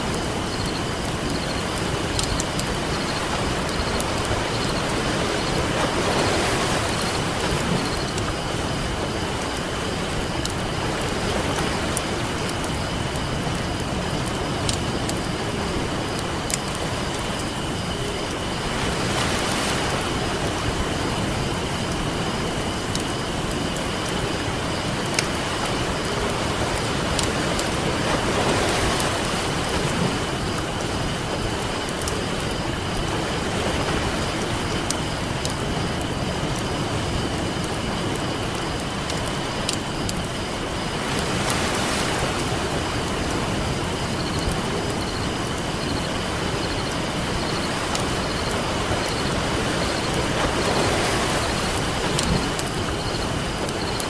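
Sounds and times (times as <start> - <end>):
campfire crackling and popping: 0.0 - 18.4
campfire crackling: 0.0 - 54.0
ocean surf: 0.0 - 54.0.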